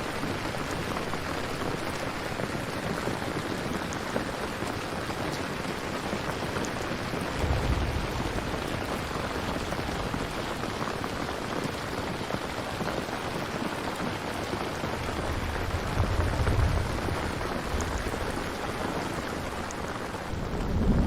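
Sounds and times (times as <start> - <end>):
dense rainfall hissing: 0.0 - 21.0
distant thunder rumble: 6.7 - 12.6, 14.9 - 21.0.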